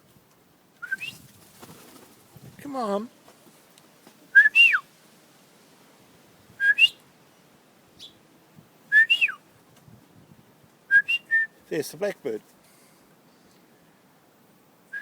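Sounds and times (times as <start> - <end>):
person whistling: 6.6 - 7.0, 8.9 - 9.4.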